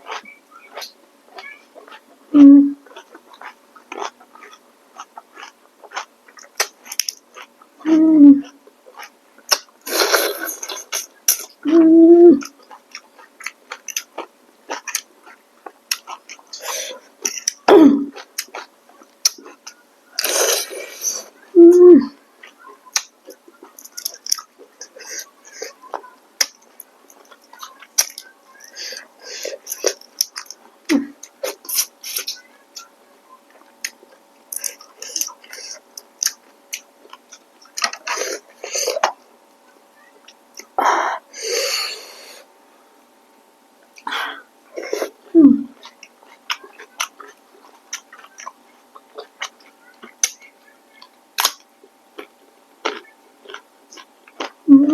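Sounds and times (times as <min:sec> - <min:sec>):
slurping: 0:00.0 - 0:18.7, 0:19.3 - 0:22.6
person humming mm: 0:02.3 - 0:02.9, 0:07.8 - 0:08.6, 0:11.6 - 0:12.5, 0:20.2 - 0:22.2, 0:44.1 - 0:45.8, 0:54.7 - 0:54.9
wet chewing and lip smacks: 0:02.8 - 0:07.6, 0:12.4 - 0:16.5, 0:28.9 - 0:30.6, 0:33.5 - 0:38.2, 0:45.8 - 0:54.6.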